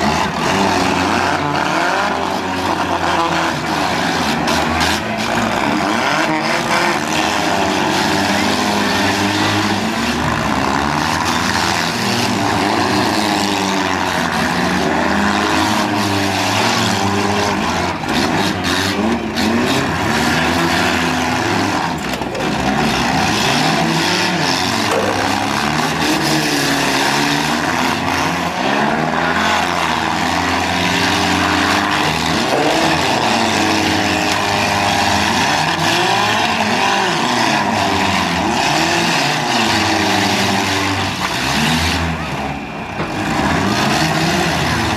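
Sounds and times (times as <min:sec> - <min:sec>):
car engines revving: 0:00.0 - 0:44.9.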